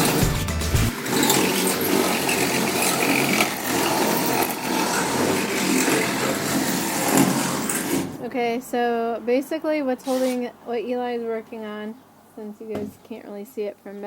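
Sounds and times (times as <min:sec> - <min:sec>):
background music: 0:00.0 - 0:01.4
power tool whirring: 0:00.9 - 0:08.2, 0:10.0 - 0:10.5.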